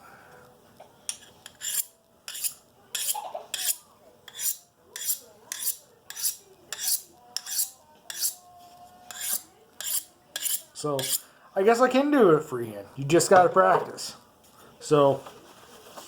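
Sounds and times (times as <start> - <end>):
knife scraping on sharpening rod: 1.1 - 8.4, 9.1 - 11.3.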